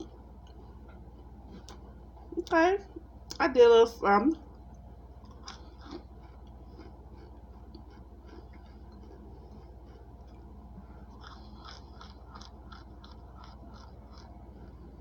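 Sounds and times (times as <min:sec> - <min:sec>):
steady low hum: 0:00.0 - 0:15.0
close-up chewing crunchy food: 0:04.7 - 0:15.0.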